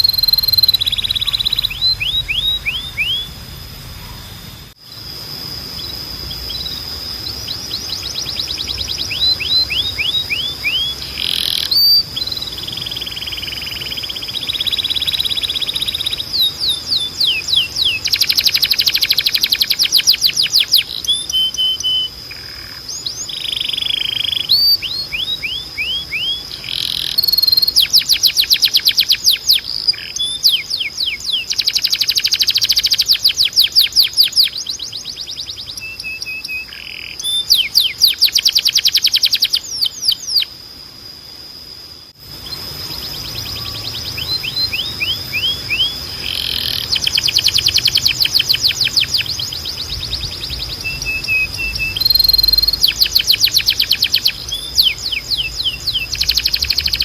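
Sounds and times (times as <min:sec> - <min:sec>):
steady high tone: 0:00.0 - 0:20.4
canary singing trills: 0:00.0 - 0:41.0, 0:42.2 - 0:57.0.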